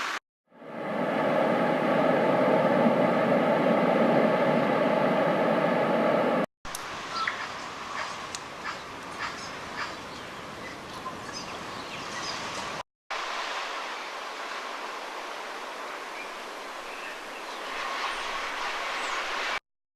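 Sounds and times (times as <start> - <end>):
small waves on a beach: 11.6 - 19.6.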